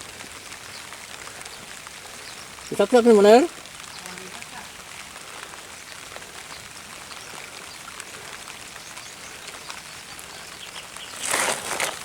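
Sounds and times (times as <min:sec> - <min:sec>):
water dripping and trickling: 0:00.0 - 0:12.0.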